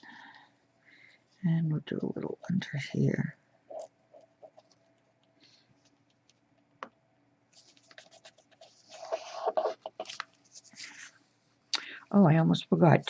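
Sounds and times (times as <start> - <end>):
paper rustling and scraping: 7.5 - 11.2.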